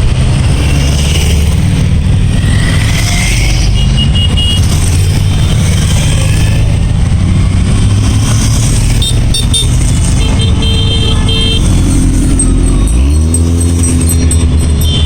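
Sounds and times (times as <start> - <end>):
engine revving: 0.0 - 15.0
motorcycle engines passing: 0.0 - 15.0
horn toots: 9.0 - 14.0.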